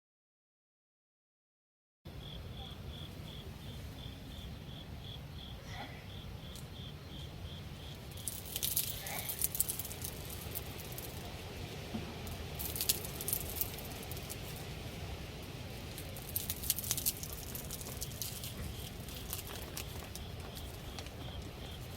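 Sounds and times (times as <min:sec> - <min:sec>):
steady low rumble: 0:02.1 - 0:21.9
sharp clicks and rustles: 0:08.1 - 0:14.7, 0:15.8 - 0:21.9.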